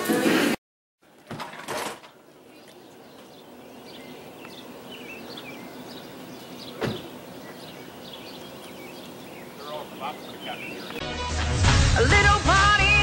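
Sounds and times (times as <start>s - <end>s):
birds chirping: 1.9s - 11.0s
sharp thump: 6.8s - 7.1s.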